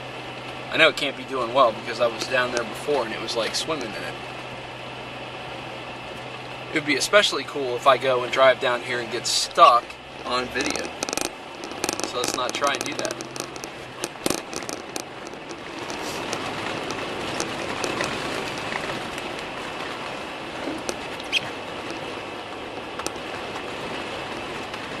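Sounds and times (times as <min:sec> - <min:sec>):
tyres and engine rumbling in snow: 0:00.0 - 0:25.0
clicks and knocks: 0:10.2 - 0:19.3.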